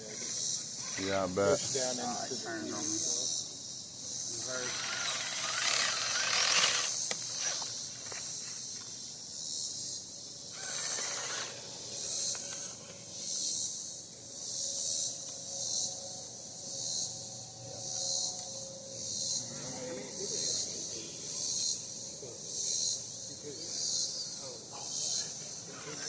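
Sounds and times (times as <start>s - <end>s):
cicadas chorus: 0.0s - 26.0s
toy car motor whirring and grinding: 4.4s - 8.4s, 10.5s - 12.8s.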